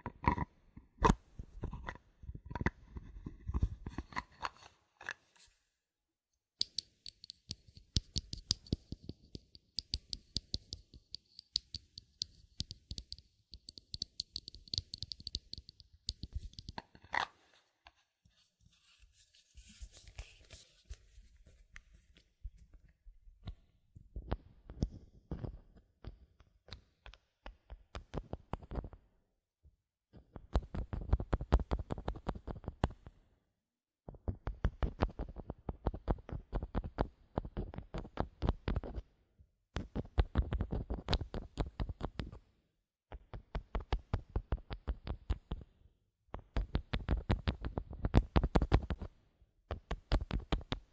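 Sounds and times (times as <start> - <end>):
soft rustle: 18.3 - 22.8.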